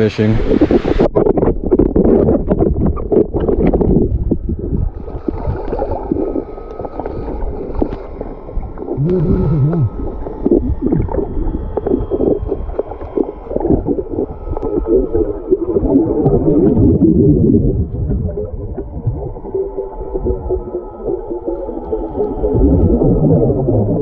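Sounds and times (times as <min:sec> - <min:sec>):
water gurgling and sloshing: 0:00.4 - 0:24.0
short wavering low tones: 0:08.2 - 0:24.0.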